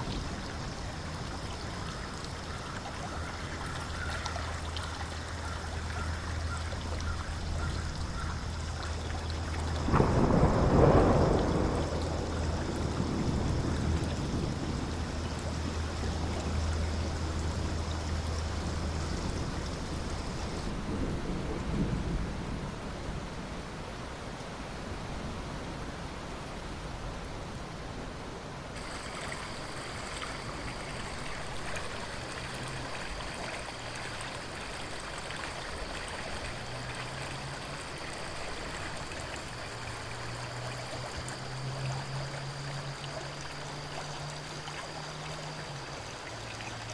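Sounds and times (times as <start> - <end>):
river water running: 0.0 - 20.8, 23.7 - 46.9
steady rain: 0.0 - 46.9
low thunder rumble: 6.8 - 23.2.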